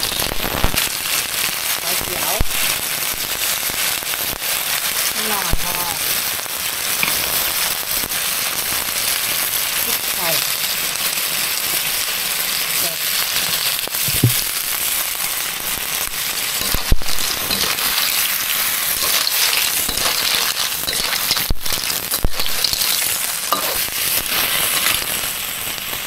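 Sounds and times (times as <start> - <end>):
clams sizzling in a pan: 0.0 - 26.0
sharp knocks in a pan: 14.0 - 14.5.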